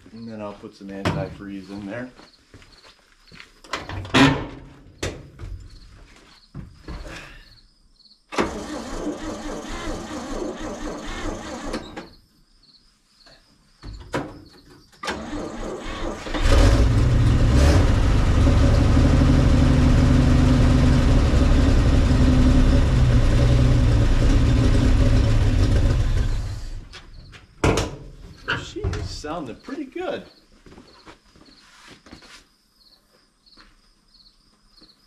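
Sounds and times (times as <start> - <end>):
truck engine running: 16.4 - 26.9.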